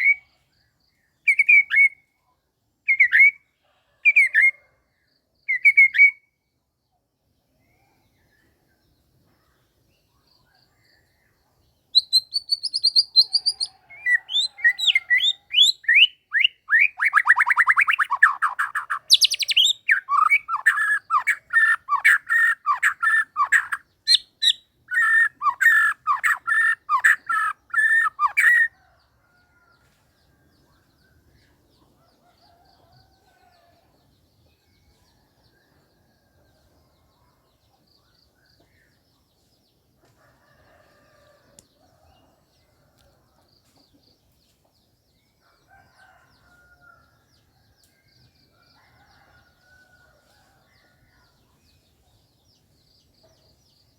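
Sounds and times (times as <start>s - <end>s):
faint bird chirps: 0.0s - 44.7s, 45.4s - 53.9s
bird calling in repeated notes: 11.9s - 28.7s.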